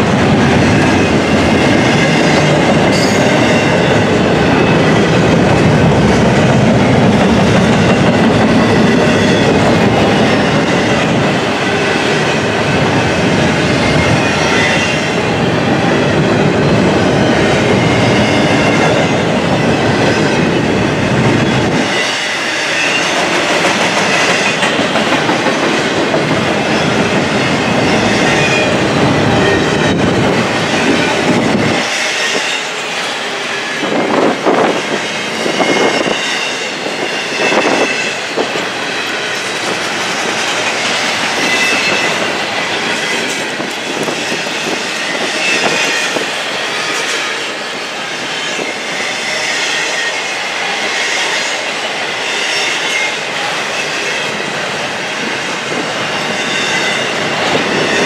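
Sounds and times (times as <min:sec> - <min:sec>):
train wheels clattering over rail joints: 0:22.8 - 0:32.6.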